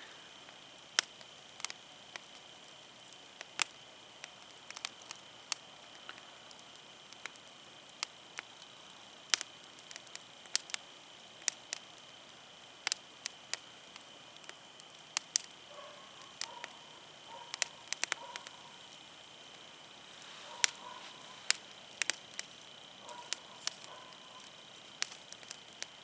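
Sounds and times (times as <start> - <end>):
low steady hiss of fire: 0.0 - 26.0
campfire crackling and popping: 0.3 - 26.0.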